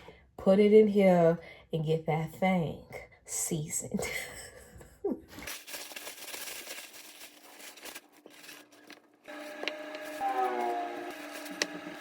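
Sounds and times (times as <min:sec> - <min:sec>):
paper towels crinkling and tearing: 0:05.4 - 0:12.0.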